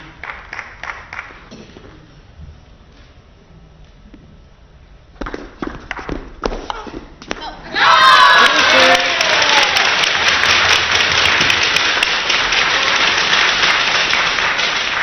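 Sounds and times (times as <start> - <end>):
person cheering: 7.7 - 9.9
crowd applauding: 8.1 - 15.0.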